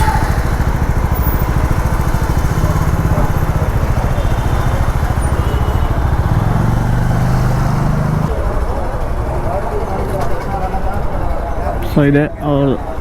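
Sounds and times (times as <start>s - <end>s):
motorcycle engine running: 0.0s - 11.5s
road and wind noise: 0.0s - 13.0s.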